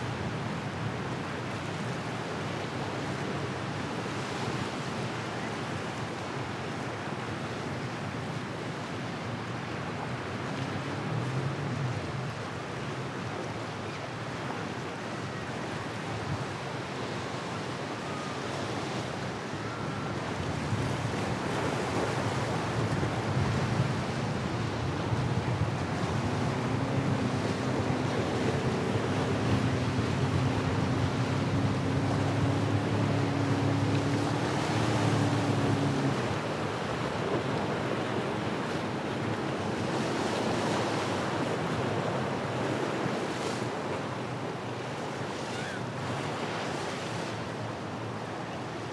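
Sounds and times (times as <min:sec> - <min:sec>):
surf: 0:00.0 - 0:48.9
powerboat engines humming: 0:00.1 - 0:48.9
wind on microphone: 0:20.2 - 0:43.3.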